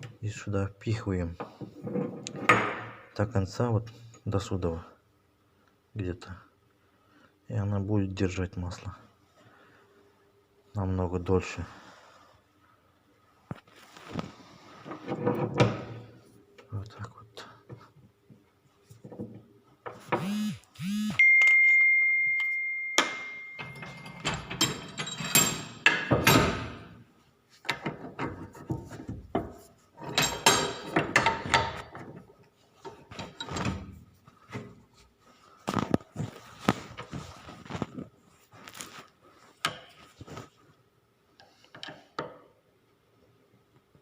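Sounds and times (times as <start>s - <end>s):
metal part ringing: 21.2s - 26.0s
metal parts knocking and clinking: 23.0s - 26.9s, 29.4s - 32.1s.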